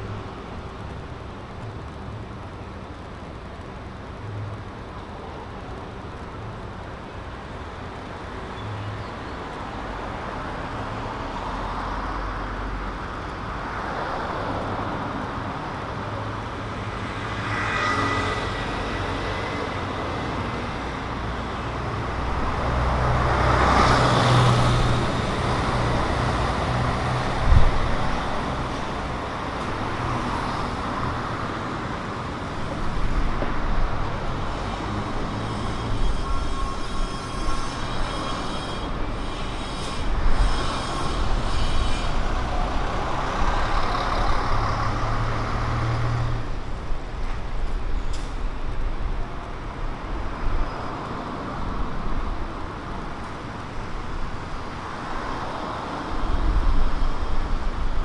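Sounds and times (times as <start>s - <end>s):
hum of street traffic: 0.0s - 58.0s
short high squeal: 35.3s - 42.7s.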